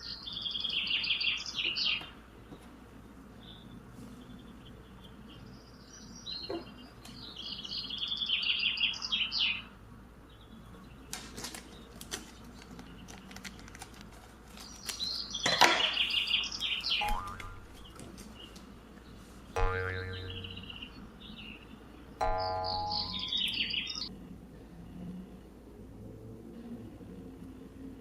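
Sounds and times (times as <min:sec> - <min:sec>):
bird chirping: 0:14.6 - 0:24.1.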